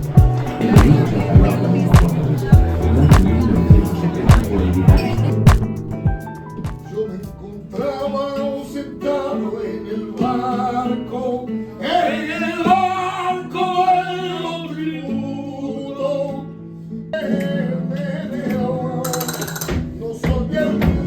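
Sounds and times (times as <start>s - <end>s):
person singing: 0.0s - 14.8s
plucked acoustic guitar: 0.0s - 21.0s.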